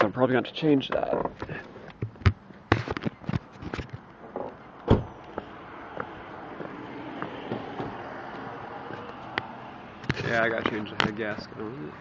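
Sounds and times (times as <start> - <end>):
loud thump: 4.9 - 5.1.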